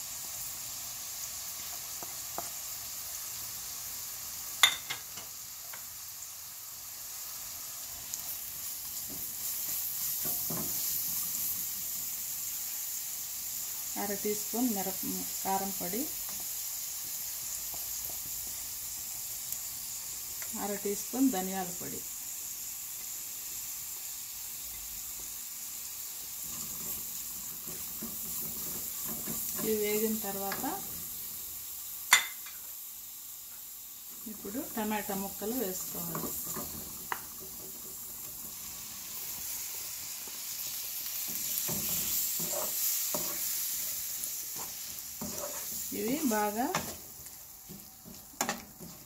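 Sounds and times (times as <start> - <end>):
onions sizzling in hot oil: 0.0 - 49.0
wooden spatula scraping: 41.1 - 49.0.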